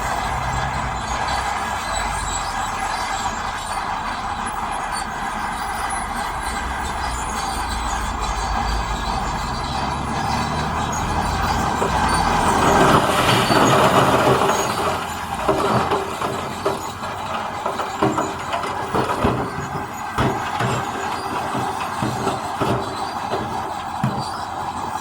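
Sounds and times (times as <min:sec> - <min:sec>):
diesel engine running: 0:00.0 - 0:25.0
machinery scraping rock: 0:06.4 - 0:25.0
metallic clanks and knocks: 0:08.0 - 0:25.0.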